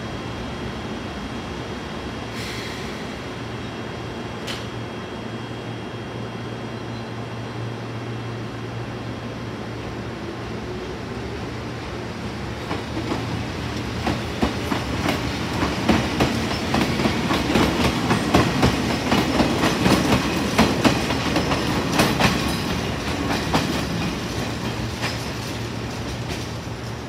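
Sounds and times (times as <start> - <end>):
train wheels clacking over rail joints: 12.6 - 27.0.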